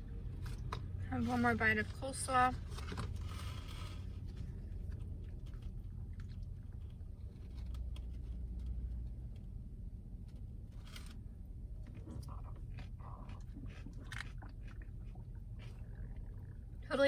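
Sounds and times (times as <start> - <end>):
low steady car cabin hum: 0.0 - 17.0
person chewing food: 2.9 - 9.4, 10.4 - 16.8.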